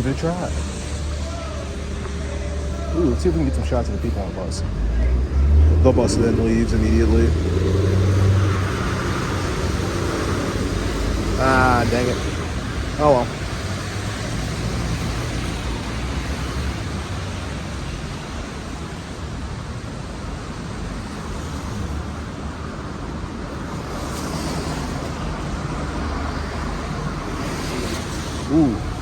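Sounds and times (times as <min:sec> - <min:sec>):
vehicle passing: 0:00.0 - 0:17.9, 0:21.0 - 0:29.0
low engine rumble: 0:00.0 - 0:18.9
tyre hiss on wet road: 0:05.4 - 0:29.0.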